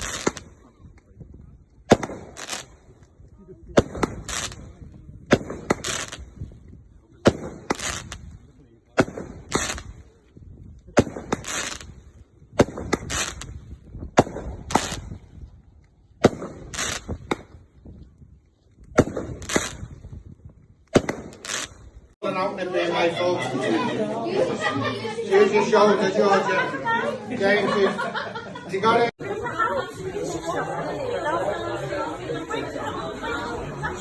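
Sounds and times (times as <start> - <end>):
fireworks bangs: 0.0 - 0.8, 1.8 - 3.0, 3.6 - 10.1, 10.9 - 15.4, 16.1 - 17.7, 18.9 - 20.2, 20.9 - 22.2
fireworks crackling bursts: 0.0 - 0.8, 1.8 - 6.6, 7.2 - 10.3, 10.9 - 15.4, 16.2 - 17.6, 18.9 - 20.2, 20.9 - 22.2.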